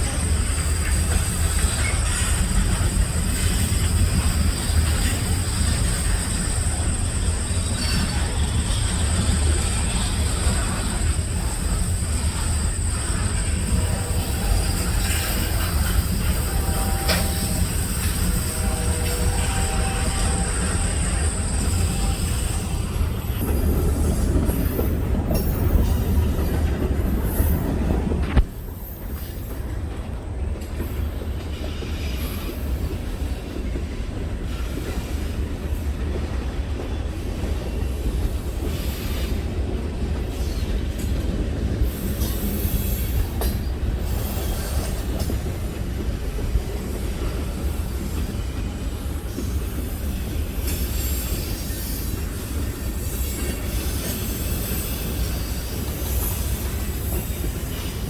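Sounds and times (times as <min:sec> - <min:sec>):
high wheel squeal: 0:00.0 - 0:27.7, 0:49.2 - 0:58.0
train wheels clattering on rails: 0:00.0 - 0:58.0.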